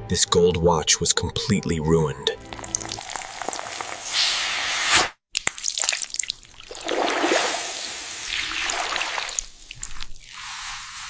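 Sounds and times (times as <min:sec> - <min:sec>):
water dripping and trickling: 0:02.4 - 0:04.0, 0:05.4 - 0:10.3.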